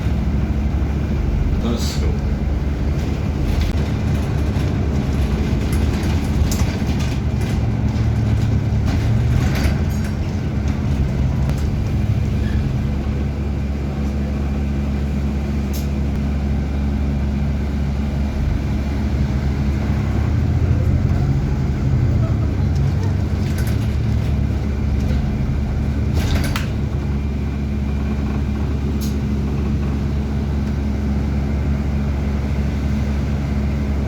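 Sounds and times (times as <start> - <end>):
bus engine drone: 0.0 - 34.0
road noise: 0.0 - 34.0
light rattles and clicks: 2.9 - 12.6, 22.6 - 27.3.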